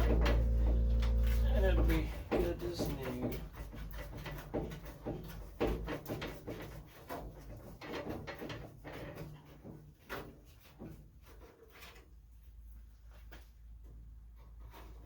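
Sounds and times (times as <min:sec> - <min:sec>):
car parts and tools clicking: 0:00.0 - 0:06.6.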